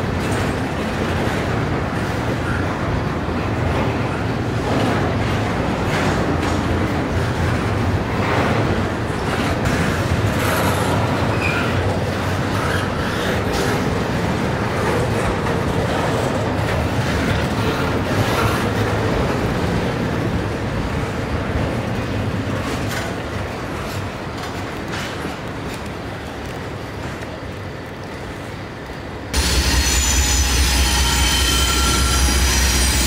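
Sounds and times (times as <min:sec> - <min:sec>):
steel wheels rumbling on rail: 0:00.0 - 0:33.0
wheels clicking over rail joints: 0:03.6 - 0:29.3.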